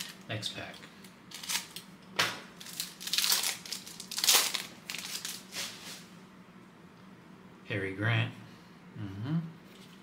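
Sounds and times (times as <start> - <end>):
wrapper tearing and crinkling: 0.0 - 0.2, 1.3 - 1.9, 2.6 - 5.7.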